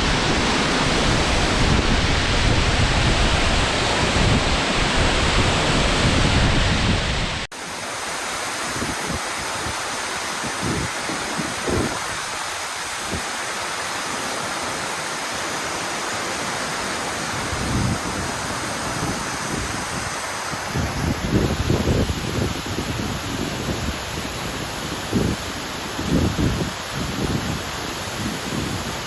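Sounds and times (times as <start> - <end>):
waterfall roaring: 0.0 - 29.0
wind thumps on microphone: 0.9 - 7.5, 20.7 - 24.0.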